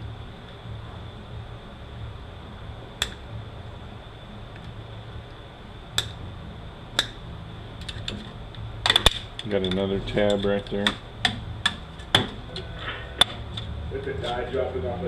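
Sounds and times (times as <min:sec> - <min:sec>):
steady low hum: 0:00.0 - 0:15.0
sharp clicks of metal parts: 0:07.8 - 0:11.8.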